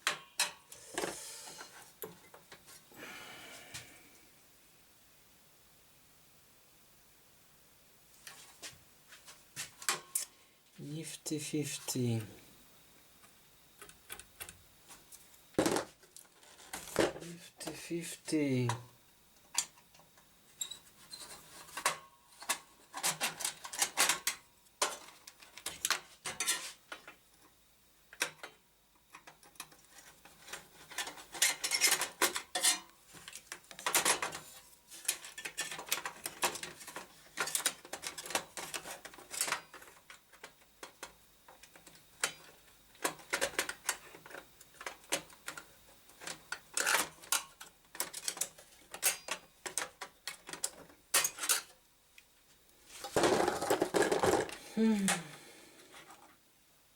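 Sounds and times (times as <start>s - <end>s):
tools clattering on workbench: 15.6s - 15.9s, 53.0s - 54.6s.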